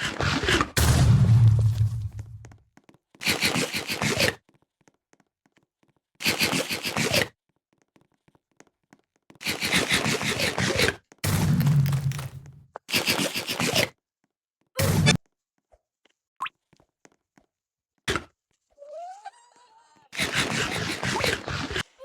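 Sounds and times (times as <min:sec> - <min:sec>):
game crunching bursts: 0:00.0 - 0:02.6, 0:03.2 - 0:04.3, 0:09.4 - 0:13.9, 0:20.1 - 0:22.0.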